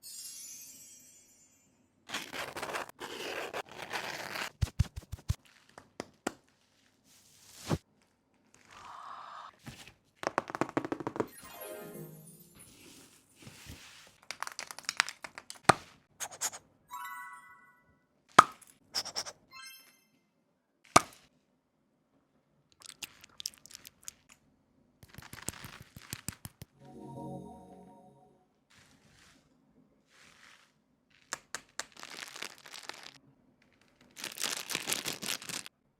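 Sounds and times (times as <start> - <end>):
card and plastic tearing: 2.1 - 5.7, 25.0 - 26.5, 31.2 - 35.7
small clicks and rustles: 25.0 - 26.8.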